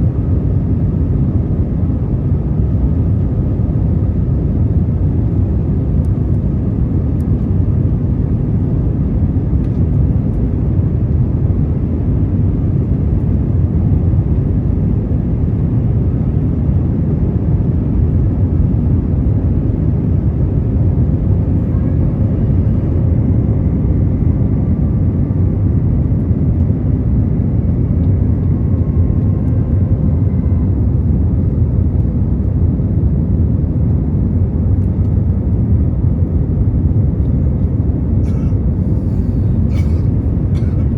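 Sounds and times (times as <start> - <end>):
airplane cabin engine rumble: 0.0 - 40.9.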